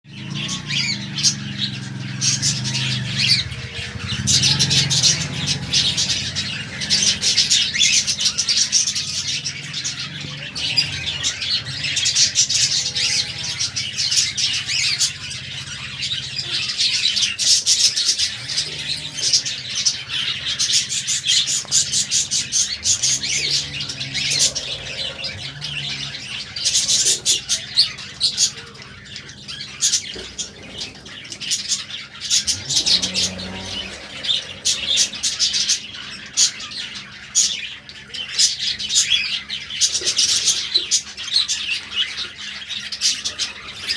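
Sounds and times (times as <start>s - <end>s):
budgerigars chattering: 0.1s - 43.9s.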